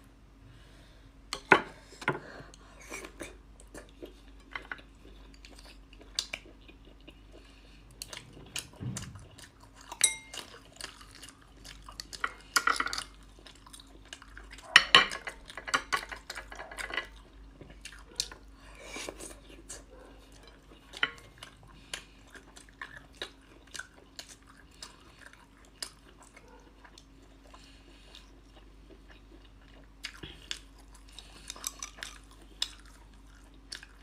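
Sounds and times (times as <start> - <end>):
utensils and dishes clinking: 10.0 - 10.6.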